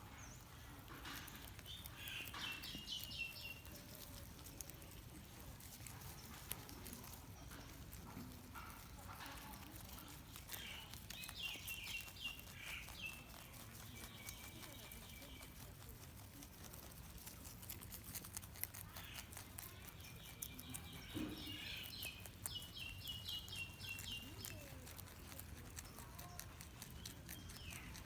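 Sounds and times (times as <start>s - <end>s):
rabbits chewing food: 0.0s - 28.0s.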